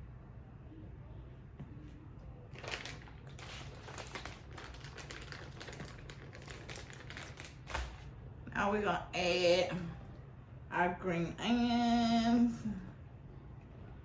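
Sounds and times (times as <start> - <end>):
low steady hum: 0.0 - 14.0
food packaging rustling: 2.5 - 8.1.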